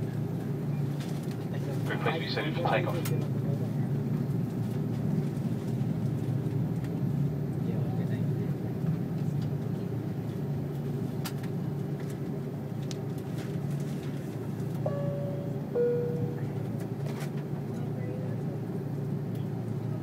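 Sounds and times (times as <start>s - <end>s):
aircraft cabin hum: 0.0s - 20.0s
two-note cabin chime: 14.9s - 16.6s.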